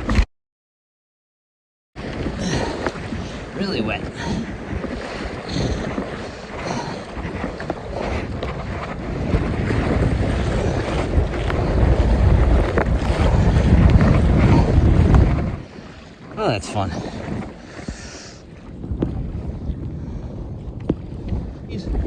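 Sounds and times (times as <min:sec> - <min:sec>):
rushing river water: 0:02.0 - 0:18.9
wind buffeting microphone: 0:02.0 - 0:22.0.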